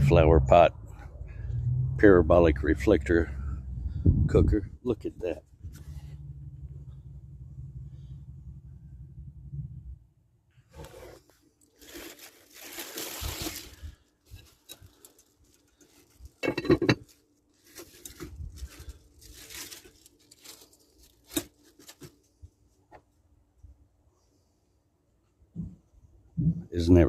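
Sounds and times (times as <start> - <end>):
rustling and crinkling: 10.5 - 23.2
crunching scrape: 10.7 - 16.4, 17.0 - 22.1.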